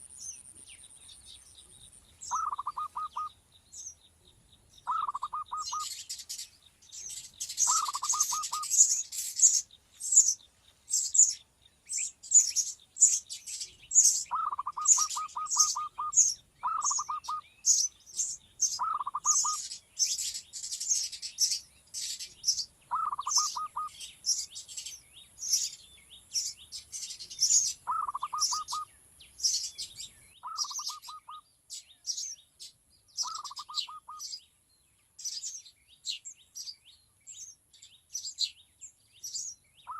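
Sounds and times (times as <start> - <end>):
low pulsing bird call: 0.0 - 4.0, 4.8 - 6.4, 7.0 - 20.8, 22.0 - 24.4, 26.4 - 31.4, 33.2 - 34.4, 39.3 - 39.9
small birds chirping: 0.0 - 39.9.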